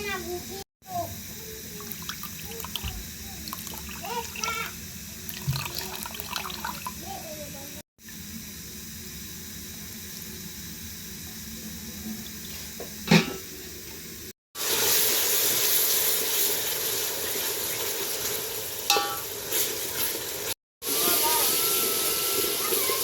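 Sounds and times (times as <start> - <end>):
food sizzling in a pan: 0.0 - 13.7, 14.6 - 23.0
metal pan clanking: 18.9 - 19.3.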